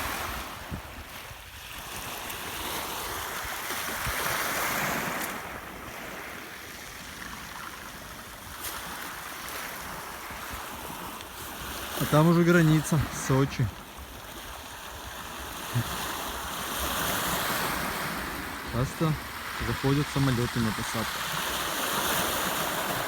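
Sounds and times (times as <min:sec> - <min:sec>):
wind rumbling on microphone: 0:00.0 - 0:06.2
waves washing onto shore: 0:00.0 - 0:23.0.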